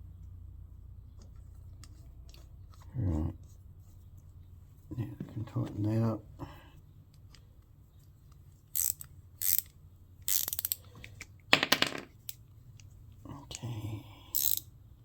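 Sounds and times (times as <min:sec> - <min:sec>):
tools clicking and scraping: 0:08.7 - 0:11.4, 0:14.3 - 0:14.7.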